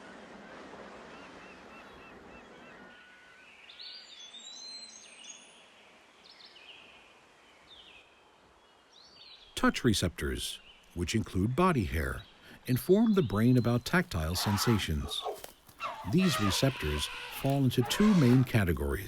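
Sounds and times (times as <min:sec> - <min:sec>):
high bird calls: 0:11.8 - 0:19.0.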